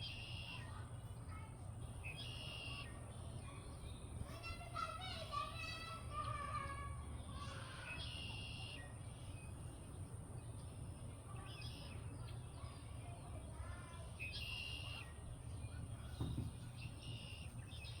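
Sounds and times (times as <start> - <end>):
soft low knock: 16.2 - 16.6.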